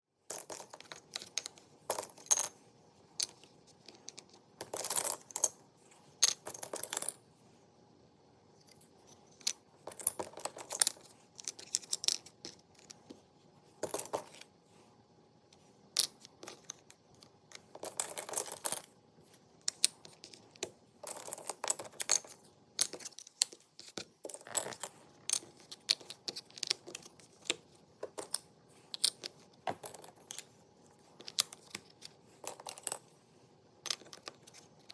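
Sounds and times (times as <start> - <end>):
puzzle pieces rustling: 9.4 - 13.0
puzzle pieces clicking and tapping: 9.4 - 13.1, 19.6 - 30.5, 31.2 - 33.0, 33.9 - 34.9.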